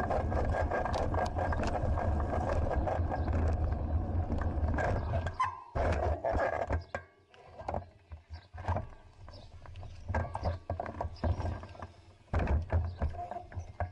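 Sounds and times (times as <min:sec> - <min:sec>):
wind rumble on microphone: 0:00.0 - 0:05.4
bike rattles and knocks: 0:00.0 - 0:13.9.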